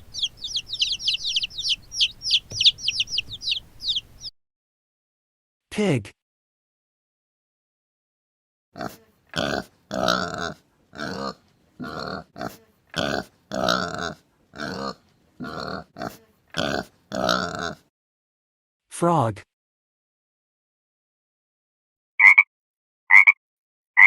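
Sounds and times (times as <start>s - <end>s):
pig grunting: 8.8s - 17.9s.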